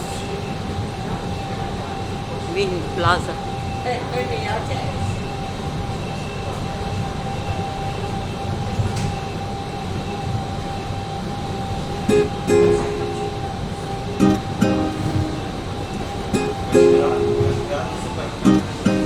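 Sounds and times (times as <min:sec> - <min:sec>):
train rumbling: 0:00.0 - 0:19.0
plucked ukulele notes: 0:18.5 - 0:19.0.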